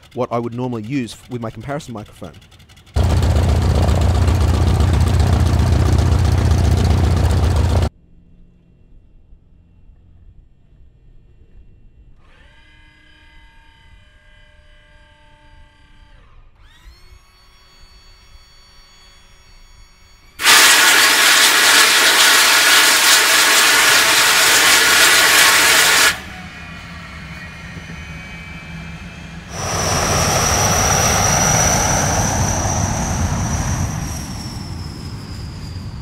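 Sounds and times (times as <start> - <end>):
loud harsh aircraft engine: 0.0 - 7.9, 20.4 - 36.0
aircraft engine high whine: 1.5 - 11.9, 17.5 - 36.0.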